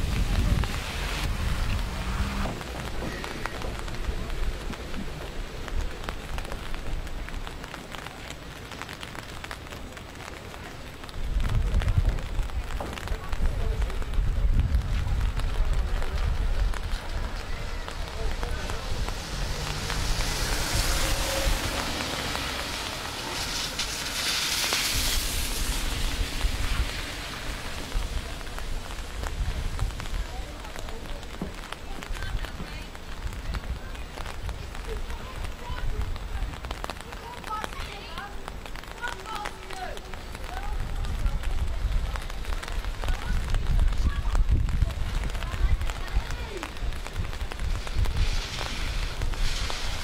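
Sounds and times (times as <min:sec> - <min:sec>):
low uneven rumble: 0:00.0 - 0:39.1
rain drops ticking: 0:00.0 - 0:50.0.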